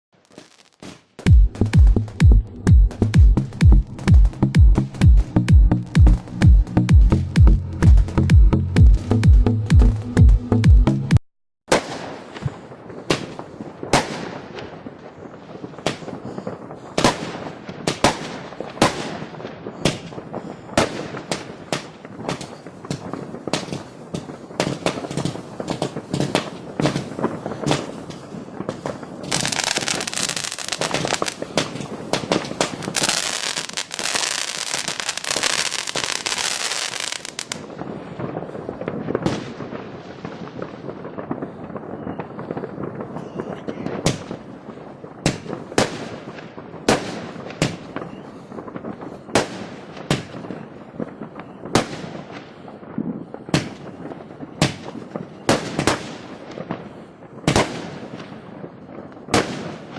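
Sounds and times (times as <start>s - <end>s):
fireworks hissing crackle: 0.2s - 1.3s, 11.7s - 59.9s
fireworks bangs: 0.2s - 9.2s, 11.7s - 59.9s.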